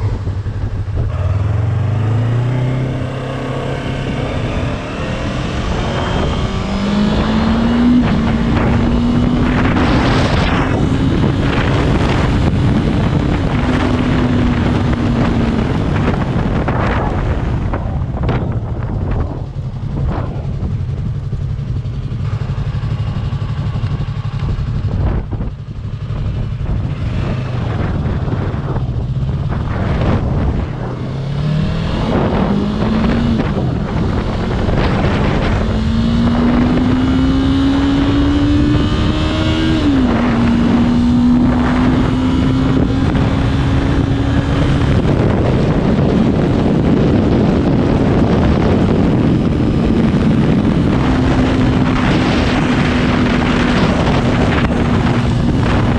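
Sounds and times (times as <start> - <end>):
motorcycle engine accelerating: 0.0 - 55.9
wind rush on microphone: 0.0 - 55.9.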